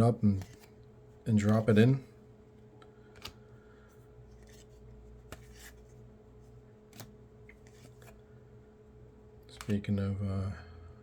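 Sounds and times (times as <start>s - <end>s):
low steady hum: 0.0s - 11.0s
cards sliding: 0.2s - 1.8s, 3.1s - 3.6s, 4.2s - 8.3s.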